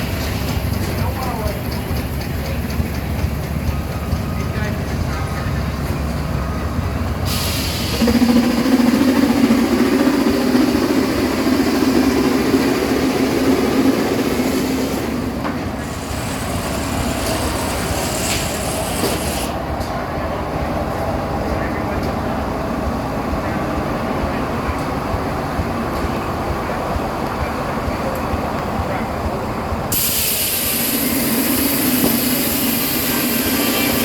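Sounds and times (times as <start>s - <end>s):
tractor running: 0.0s - 34.0s.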